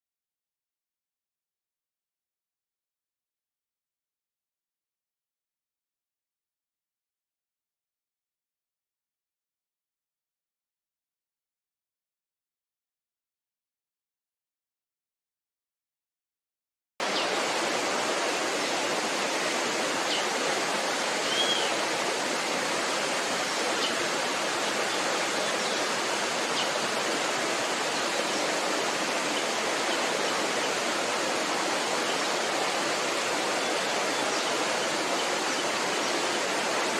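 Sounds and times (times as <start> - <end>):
rushing water noise: 17.0 - 36.9
faint high chirps: 21.2 - 21.8.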